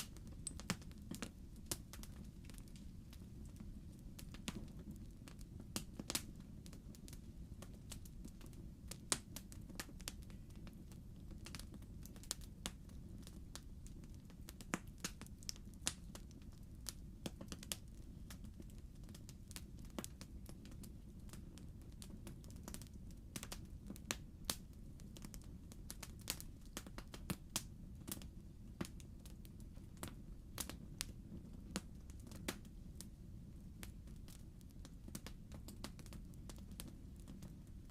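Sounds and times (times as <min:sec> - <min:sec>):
fire crackling and popping: 0:00.0 - 0:37.9
low rumble of flame: 0:00.0 - 0:37.9.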